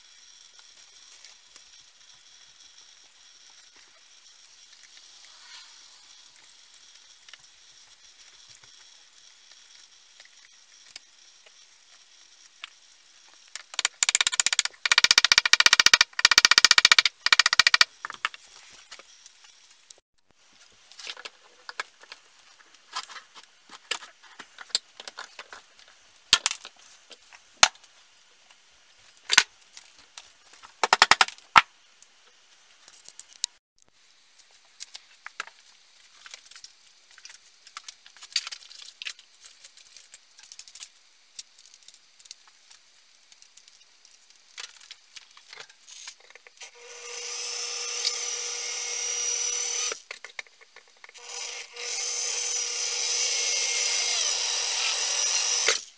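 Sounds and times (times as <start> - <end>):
tools clicking and knocking: 13.6 - 18.4
small power tool running: 46.6 - 50.0, 51.2 - 55.9.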